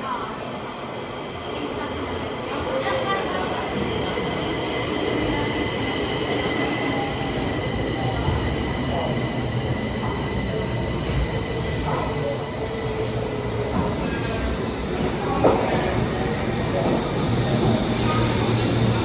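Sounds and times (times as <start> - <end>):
metro train rumbling: 0.0 - 19.0.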